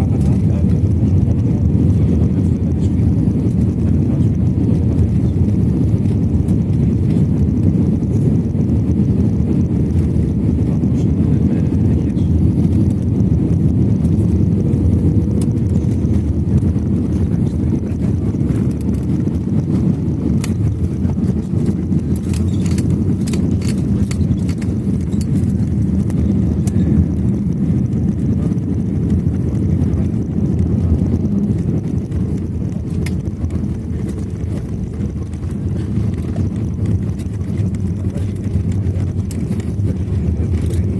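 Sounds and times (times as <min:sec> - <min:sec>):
airliner cabin rumble: 0:00.0 - 0:40.9
sharp clicks or rattles: 0:21.6 - 0:25.6.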